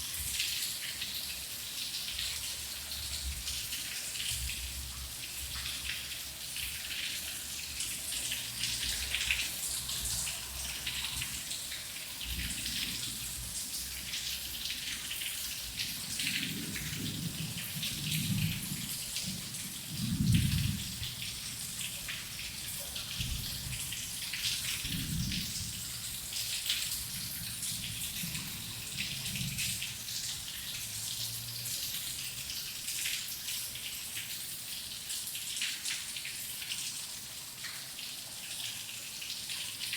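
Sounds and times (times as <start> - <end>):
heavy rain: 0.0 - 39.9
distant thunder rumbling: 16.2 - 21.8.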